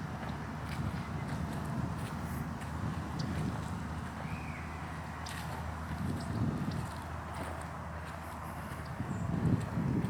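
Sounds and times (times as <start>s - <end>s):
footsteps on path: 0.2s - 10.0s.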